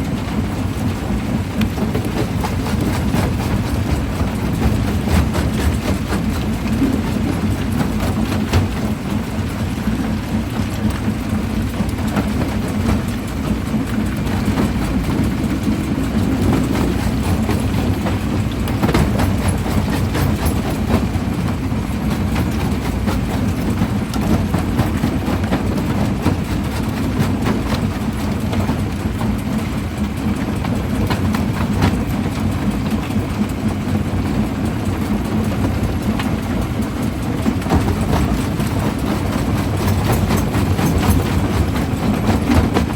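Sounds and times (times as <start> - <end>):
jaw crusher rumbling: 12.2 - 21.2.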